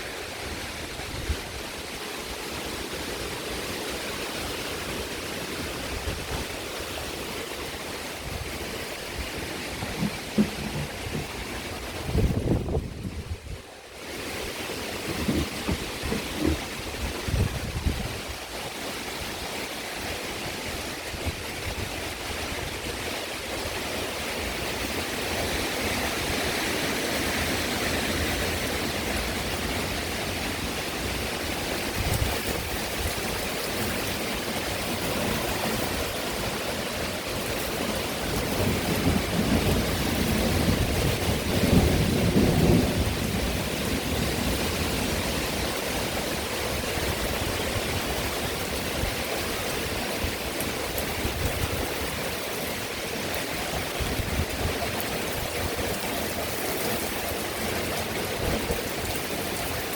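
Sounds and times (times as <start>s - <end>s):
heavy rain pouring: 0.0s - 59.9s
thunder rumbling: 8.3s - 13.4s, 38.4s - 45.2s.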